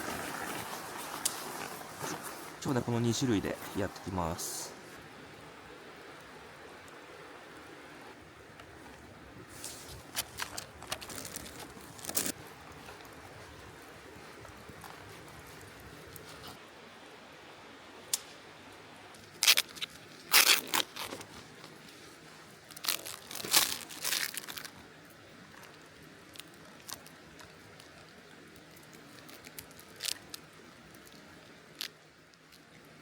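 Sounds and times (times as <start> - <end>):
plastic packaging crinkling and tearing: 10.1 - 12.4, 19.3 - 21.5, 22.7 - 24.8.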